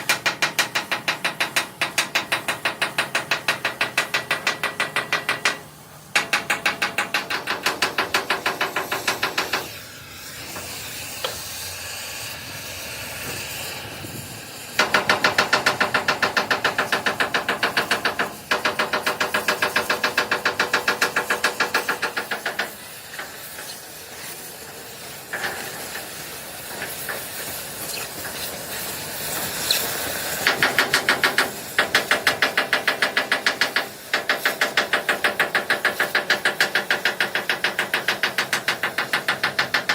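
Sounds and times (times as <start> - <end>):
machine hammering on steel: 0.0 - 9.8, 14.8 - 23.7, 24.5 - 27.6, 30.2 - 39.9
steady hiss: 0.0 - 39.9.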